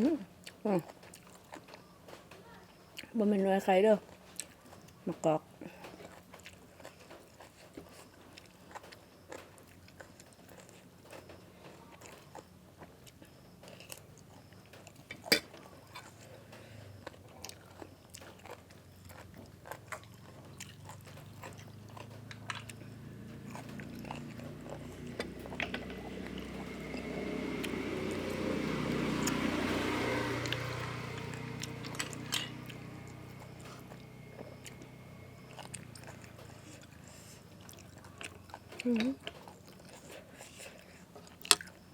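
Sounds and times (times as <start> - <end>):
person chewing crunchy food: 0.0 - 2.2, 4.0 - 41.9
low engine hum: 21.0 - 38.5.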